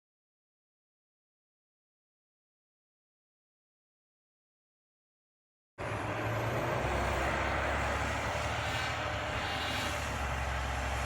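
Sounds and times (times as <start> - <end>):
garbage truck engine rumbling: 5.8 - 11.0.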